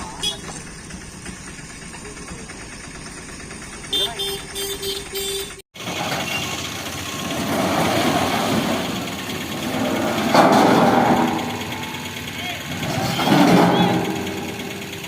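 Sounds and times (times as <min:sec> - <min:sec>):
machinery clattering: 0:05.8 - 0:15.0.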